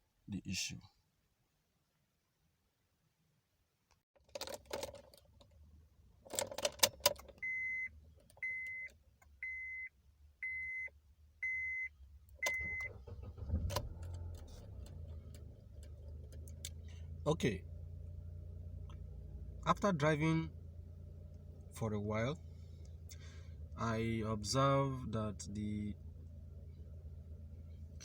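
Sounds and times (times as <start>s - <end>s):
car keys jangling: 4.2s - 5.6s, 6.2s - 7.5s
car warning chime beeping: 7.4s - 13.4s
car engine running: 12.0s - 28.0s.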